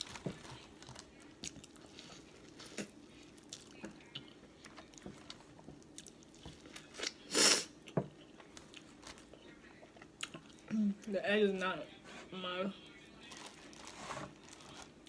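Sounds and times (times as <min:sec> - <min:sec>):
person chewing: 0:00.0 - 0:10.7.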